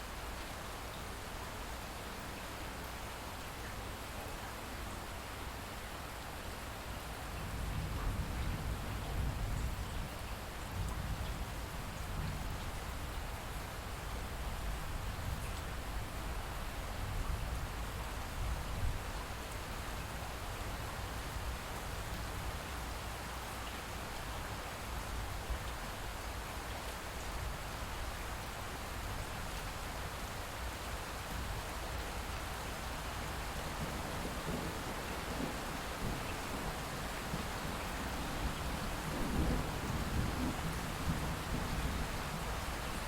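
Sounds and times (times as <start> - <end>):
light rainfall: 0.0 - 43.0
distant rumble of thunder: 33.8 - 42.6.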